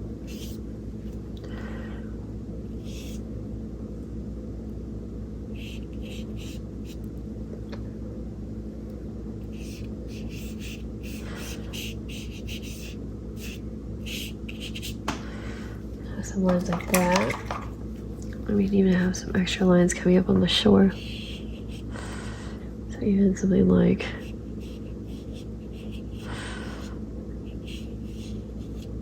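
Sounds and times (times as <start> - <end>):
low hum: 0.0 - 29.0
paintbrush strokes on paper: 20.9 - 21.8.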